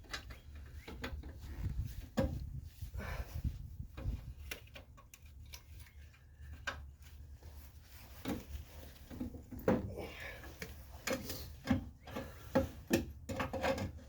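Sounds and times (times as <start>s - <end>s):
hand tools clicking and knocking: 10.5s - 14.0s.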